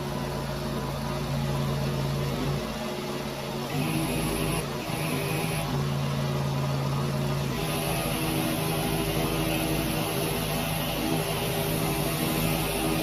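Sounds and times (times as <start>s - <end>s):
pressure washer engine running: 7.5s - 13.0s.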